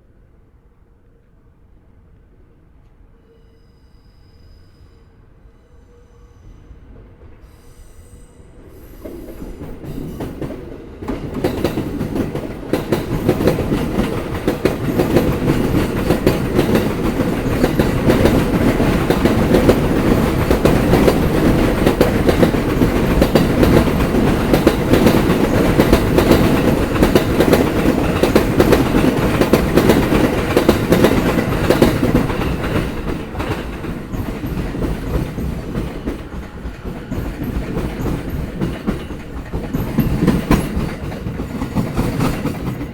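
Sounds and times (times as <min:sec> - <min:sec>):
train wheels clattering over rail joints: 0:09.0 - 0:42.9.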